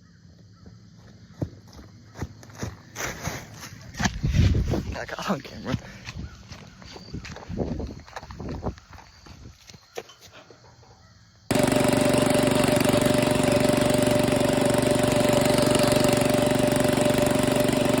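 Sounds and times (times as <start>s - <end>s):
lawn mower engine running: 11.5s - 18.0s.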